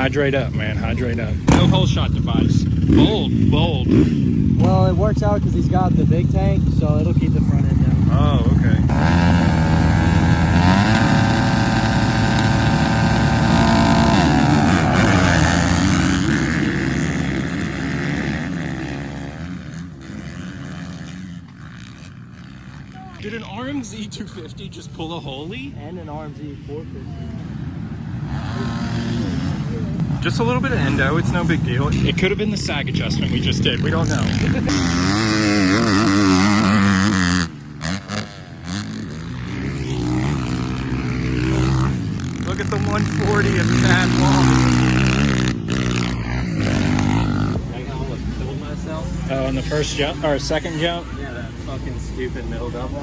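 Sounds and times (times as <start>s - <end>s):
dirt bike engines revving: 0.0s - 53.0s.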